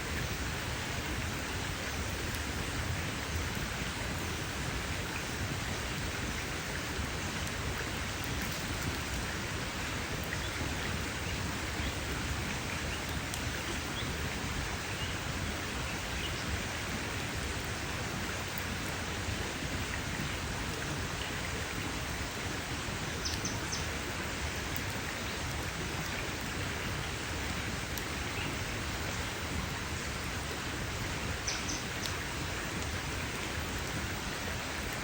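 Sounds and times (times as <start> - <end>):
campfire crackles: 0.0 - 35.0
campfire hissing: 0.0 - 35.0.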